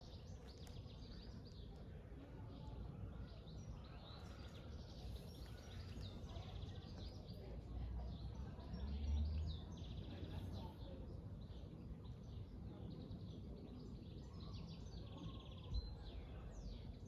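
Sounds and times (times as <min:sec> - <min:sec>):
small birds chirping: 0:00.0 - 0:08.9.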